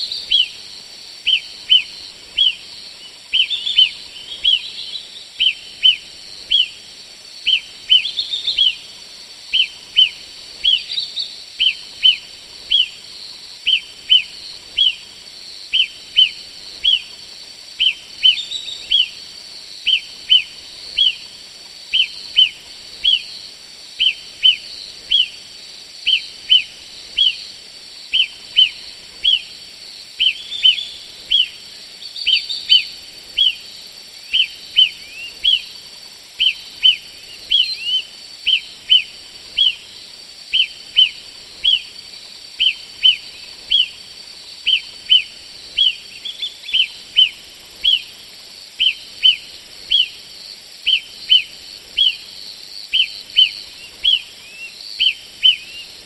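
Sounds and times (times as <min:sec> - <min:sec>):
songbird calling: 0:00.0 - 0:06.8, 0:07.4 - 0:15.1, 0:15.7 - 0:17.2, 0:17.8 - 0:23.4, 0:24.0 - 0:56.0.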